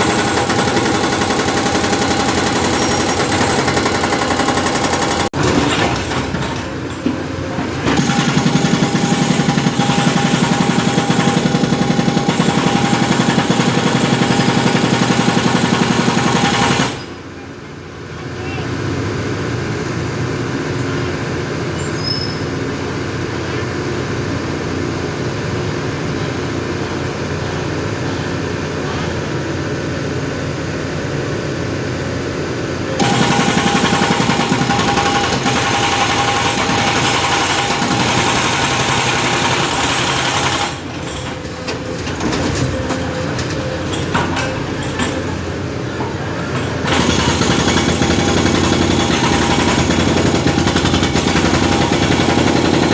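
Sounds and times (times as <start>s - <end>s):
jackhammer pounding concrete: 0.0s - 6.6s, 7.8s - 17.1s, 33.0s - 41.3s, 46.8s - 52.9s.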